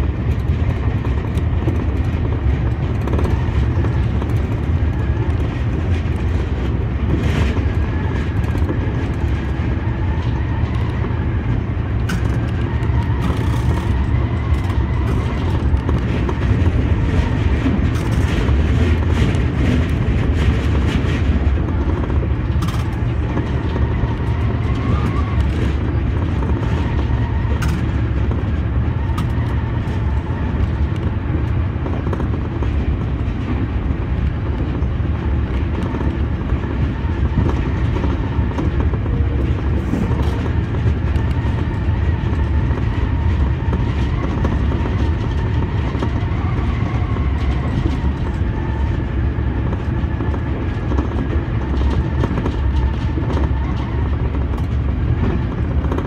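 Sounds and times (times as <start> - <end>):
traction motor whine: 0.0 - 56.0
train wheels rumbling on rails: 0.0 - 56.0.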